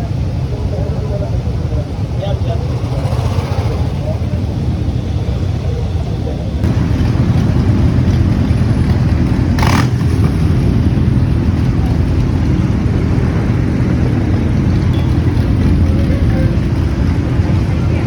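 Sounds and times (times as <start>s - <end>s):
wind rushing over microphone: 0.0s - 18.0s
motorcycle engine running: 2.6s - 4.8s, 6.6s - 18.0s.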